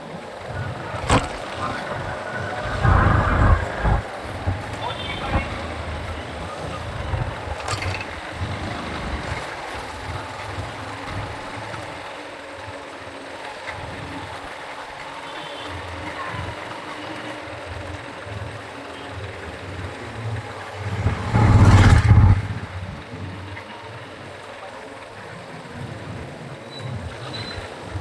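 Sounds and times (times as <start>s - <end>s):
motorcycle engine rumble: 0.0s - 11.2s, 19.6s - 23.5s
wind and road noise: 0.0s - 11.6s, 19.3s - 23.6s.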